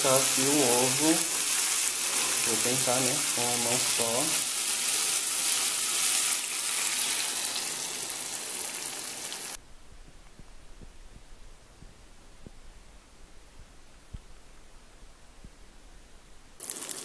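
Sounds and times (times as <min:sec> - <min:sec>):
greens sizzling in a pan: 0:00.0 - 0:09.6, 0:16.6 - 0:17.0.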